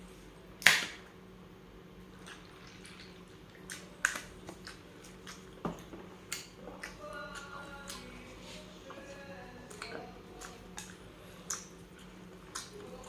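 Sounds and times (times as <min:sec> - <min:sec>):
wet mouth smacks while chewing: 0:02.2 - 0:08.1, 0:09.7 - 0:12.8.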